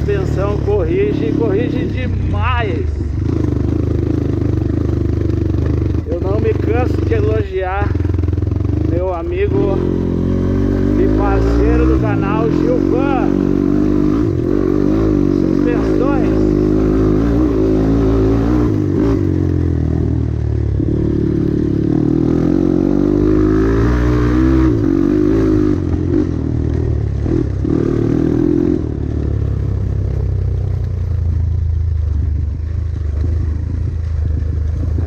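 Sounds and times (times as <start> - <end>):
motorcycle engine revving: 0.0 - 35.0
clatter: 3.2 - 9.2, 29.0 - 35.0.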